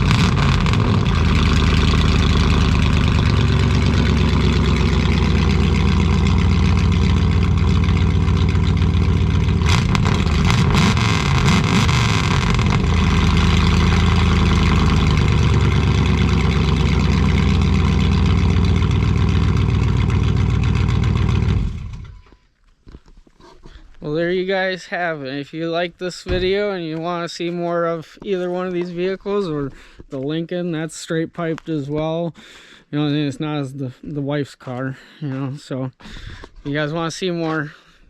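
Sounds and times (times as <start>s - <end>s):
loud v eight engine idling: 0.0s - 22.2s.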